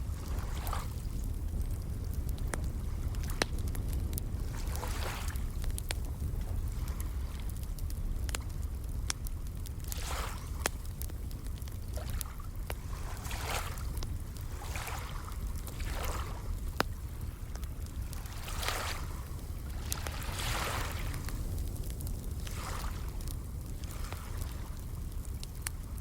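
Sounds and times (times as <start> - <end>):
campfire crackling and popping: 0.0 - 26.0
steady low rumble: 0.0 - 26.0
small waves washing: 0.1 - 1.8, 4.4 - 5.6, 9.9 - 10.7, 12.0 - 21.5, 22.4 - 23.2, 23.8 - 24.8.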